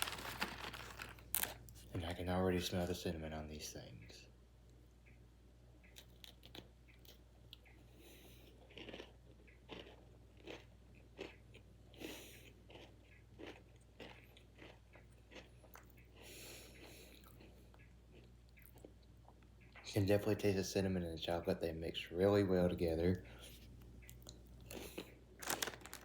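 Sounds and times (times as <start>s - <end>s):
cookie crunching and chewing: 0.0s - 1.9s, 5.9s - 20.0s, 23.4s - 26.0s.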